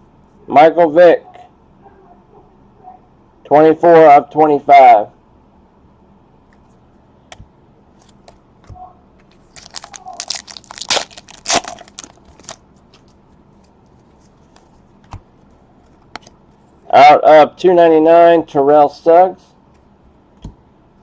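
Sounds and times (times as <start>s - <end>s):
wrapper crinkling and tearing: 9.4s - 13.2s.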